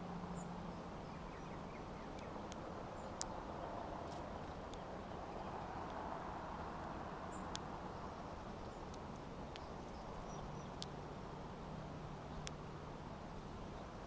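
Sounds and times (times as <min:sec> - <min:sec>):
sharp clicks: 0:10.7 - 0:11.0.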